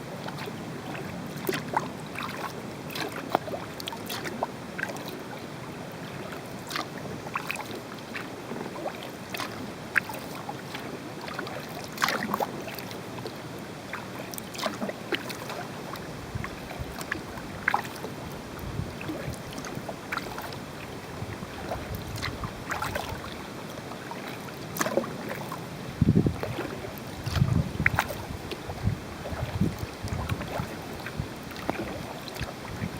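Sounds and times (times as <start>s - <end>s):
paddle splashing and dripping: 0.0s - 32.9s.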